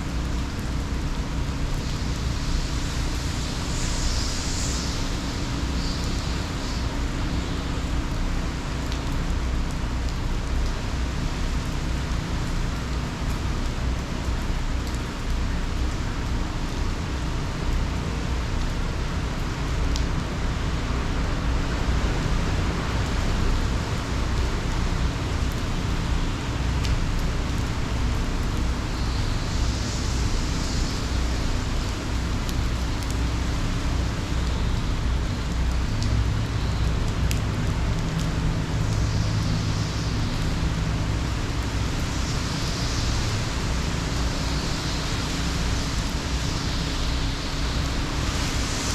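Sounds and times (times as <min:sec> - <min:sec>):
heavy rain and wind: 0:00.0 - 0:48.9
raindrop ticks: 0:07.7 - 0:16.8, 0:24.4 - 0:28.6, 0:31.8 - 0:46.6.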